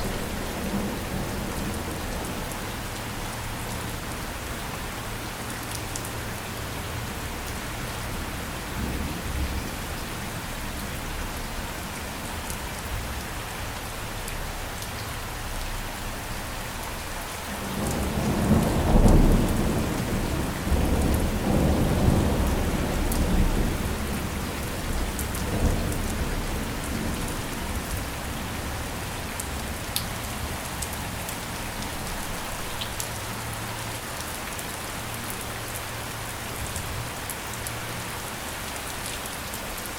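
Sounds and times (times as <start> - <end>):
steady rain falling: 0.0 - 39.9
thunder rumbling: 17.6 - 29.7.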